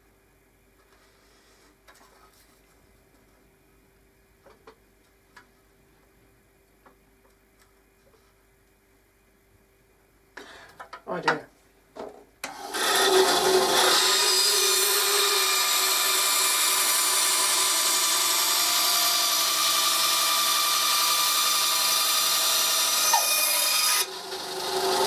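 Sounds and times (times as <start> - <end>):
power tool running on wood: 12.5 - 25.0.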